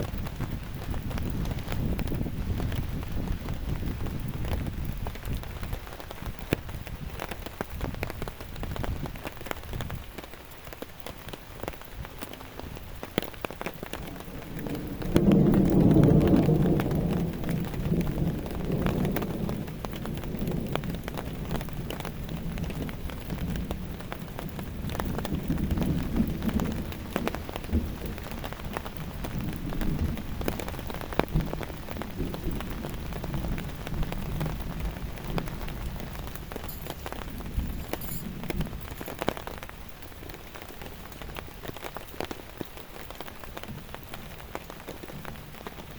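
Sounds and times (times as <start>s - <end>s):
thunder rumbling: 0.0s - 7.2s, 12.0s - 42.0s, 43.2s - 45.9s
rain drops ticking: 0.0s - 45.9s.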